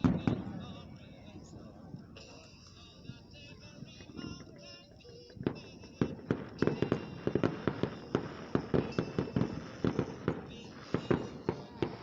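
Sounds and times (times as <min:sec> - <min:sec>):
firework bangs and cracks: 0:00.0 - 0:00.9, 0:05.3 - 0:12.0
high wavering firework tones: 0:00.0 - 0:12.0.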